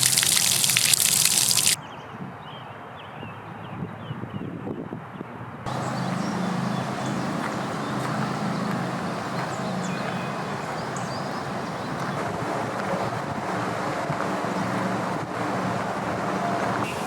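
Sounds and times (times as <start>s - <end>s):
birds chirping: 0.0s - 1.8s, 5.7s - 12.2s.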